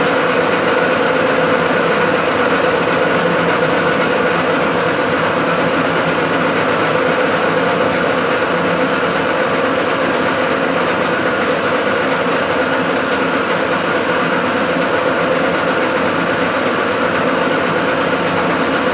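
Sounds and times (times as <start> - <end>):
machine tool humming: 0.0 - 11.3.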